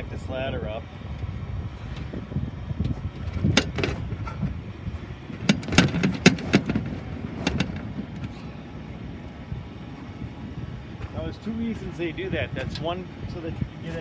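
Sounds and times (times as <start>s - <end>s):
low rumble: 0.0s - 14.0s
ladder knocking and clanking: 1.8s - 8.5s.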